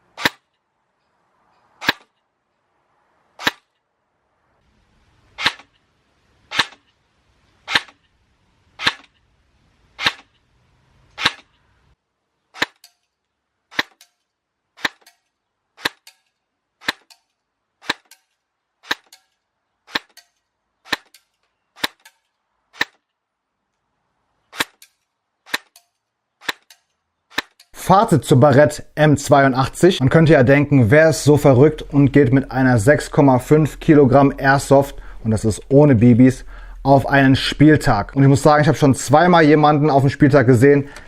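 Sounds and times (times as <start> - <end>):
airsoft gun shots cracking: 0.2 - 0.5, 1.8 - 2.2, 3.4 - 3.8, 5.4 - 5.8, 6.5 - 6.9, 7.6 - 8.1, 8.8 - 9.2, 10.0 - 10.4, 11.2 - 11.6, 12.5 - 13.0, 13.7 - 14.1, 14.8 - 15.2, 15.8 - 16.2, 16.8 - 17.2, 17.8 - 18.2, 18.8 - 19.3, 19.9 - 23.0, 24.5 - 25.8, 26.4 - 27.7.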